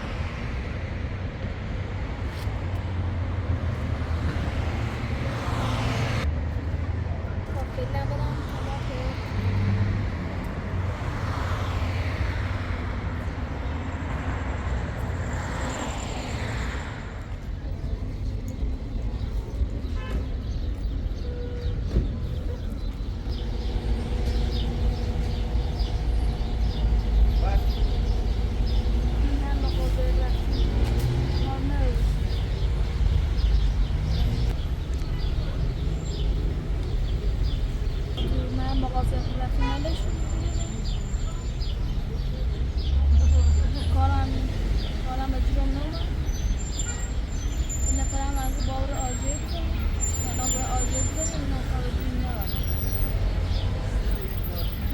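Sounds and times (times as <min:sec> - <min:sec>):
motor vehicle engine rumbling: 0:00.0 - 0:54.9
road noise: 0:00.0 - 0:54.9
small birds chirping: 0:17.6 - 0:54.9.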